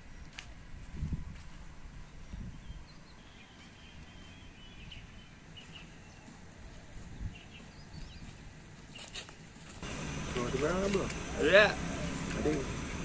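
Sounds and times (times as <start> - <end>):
birds chirping: 2.0 - 9.2, 9.8 - 13.0
low outdoor rumble: 9.8 - 13.0.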